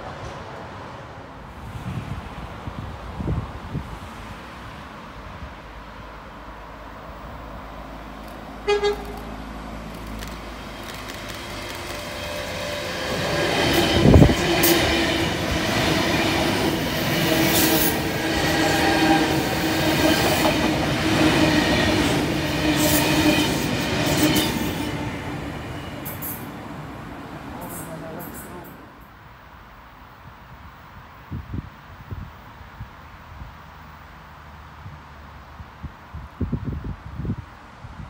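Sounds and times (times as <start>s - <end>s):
electric train passing: 0.0s - 30.2s
train horn toot: 8.6s - 9.3s.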